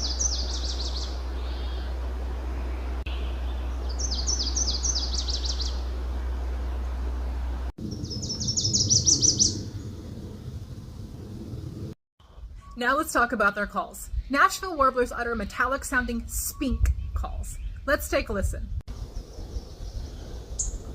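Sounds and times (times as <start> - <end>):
bird singing with rapid trill: 0.0 - 1.9, 3.1 - 5.8, 7.9 - 9.7, 12.6 - 18.2, 19.3 - 20.9
steady low hum: 0.0 - 12.6.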